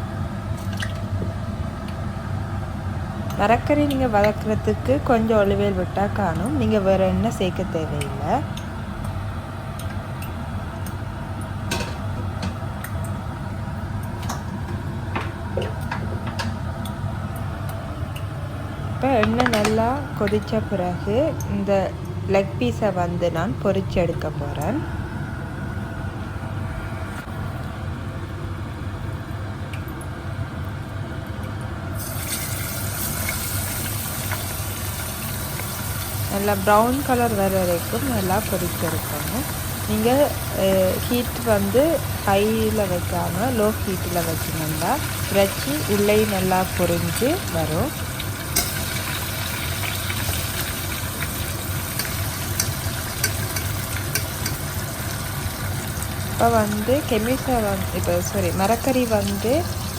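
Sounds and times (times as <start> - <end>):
steady low hum: 0.0 - 59.9
chicken sizzling in hot oil: 31.9 - 59.9.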